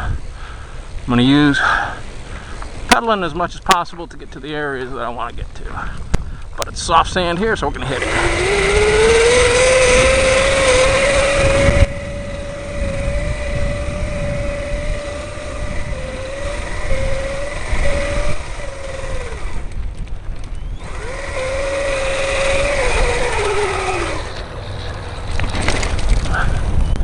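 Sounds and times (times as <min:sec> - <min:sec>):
electric bike motor whining: 0:07.8 - 0:25.8.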